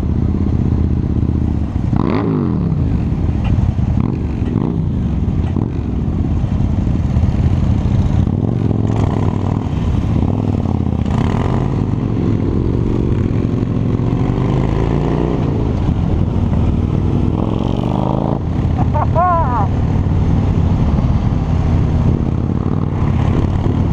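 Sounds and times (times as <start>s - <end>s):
motorcycle engine revving: 0.0s - 23.9s
wind and road noise: 0.0s - 23.9s.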